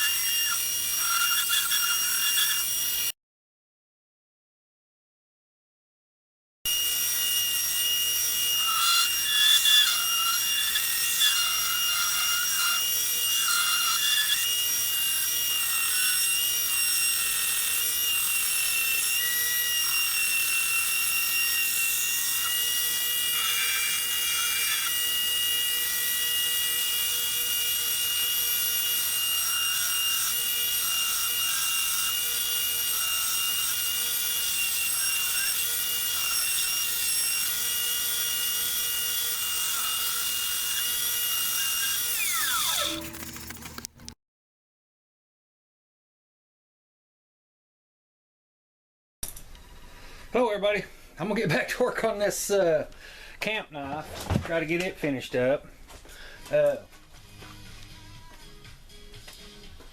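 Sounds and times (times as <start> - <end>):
belt grinder grinding: 0.0 - 3.1, 6.7 - 44.2.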